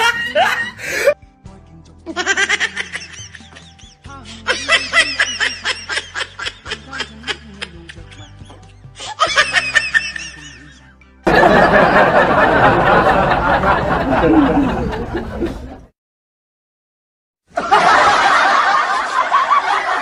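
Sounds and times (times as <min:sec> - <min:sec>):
person laughing: 0:00.0 - 0:01.2, 0:02.1 - 0:15.8
background music: 0:00.0 - 0:15.4.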